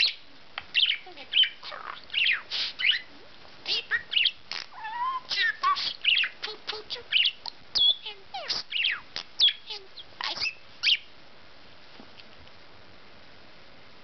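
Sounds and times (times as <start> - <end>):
budgerigar chattering: 0.8 - 3.1, 3.7 - 11.1.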